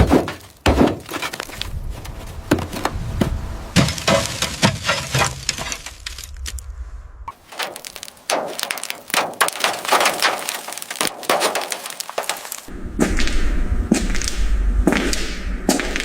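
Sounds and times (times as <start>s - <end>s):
low steady rumble: 1.3s - 7.5s, 12.7s - 16.0s.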